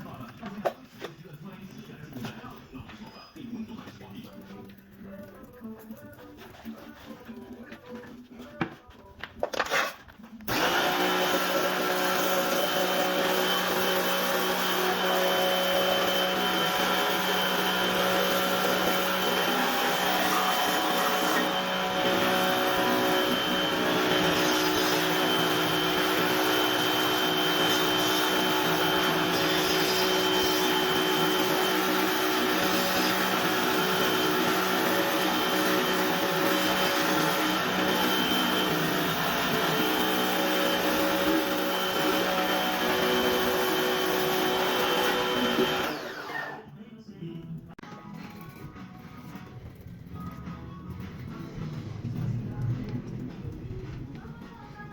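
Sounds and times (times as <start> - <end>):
pressure washer running: 10.5 - 46.6.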